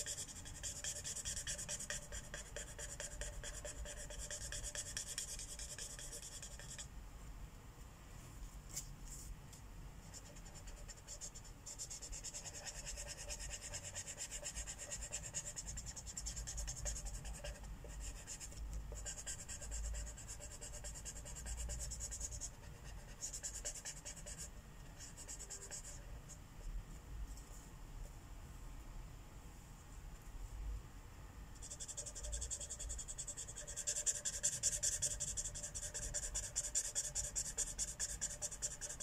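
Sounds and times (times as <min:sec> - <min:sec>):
marker scratching on paper: 0:00.0 - 0:06.9, 0:10.1 - 0:26.3, 0:31.6 - 0:39.0.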